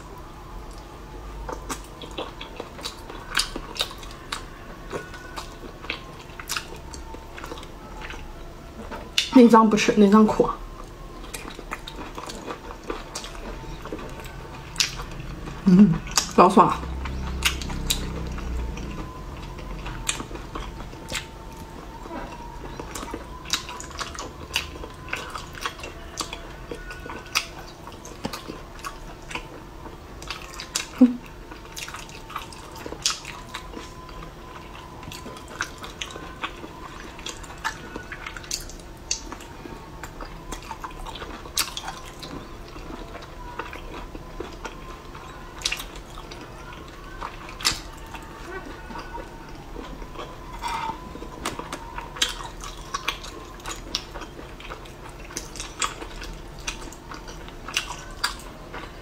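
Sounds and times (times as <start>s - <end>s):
wet chewing clicks and squelches: 0.0s - 59.0s.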